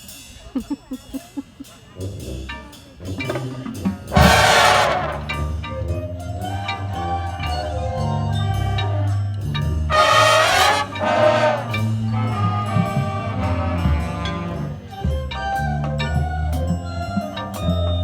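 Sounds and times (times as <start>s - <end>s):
marching band playing: 3.2s - 15.2s.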